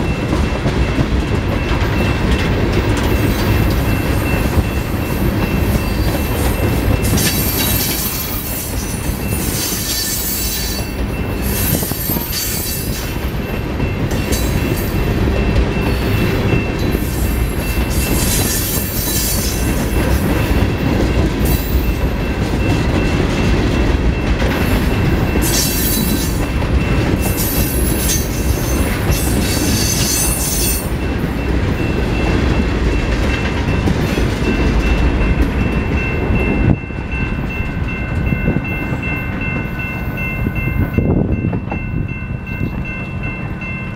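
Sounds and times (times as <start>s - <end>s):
train wheels rumbling on rail: 0.0s - 43.9s
train wheels squealing: 3.1s - 15.0s, 15.7s - 19.9s, 25.3s - 30.9s.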